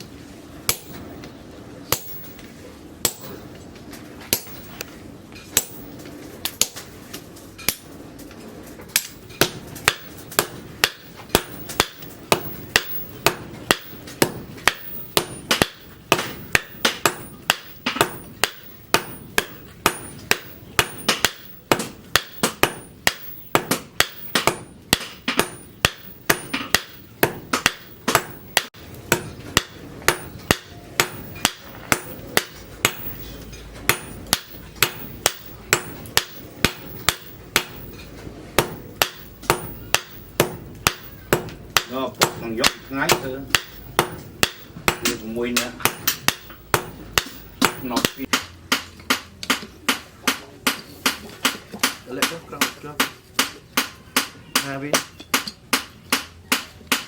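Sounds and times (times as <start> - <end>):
hammer striking steel on anvil: 0.7 - 1.1, 1.9 - 3.5, 4.3 - 4.9, 5.5 - 6.9, 7.6 - 8.0, 8.9 - 57.0.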